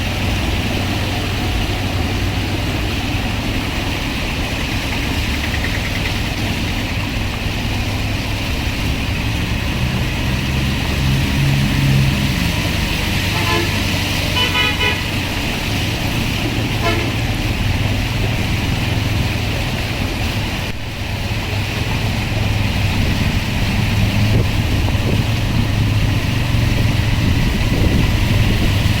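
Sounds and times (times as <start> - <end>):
road traffic engines running: 0.0 - 29.0
vehicle horn tooting: 13.3 - 15.2, 16.7 - 17.2.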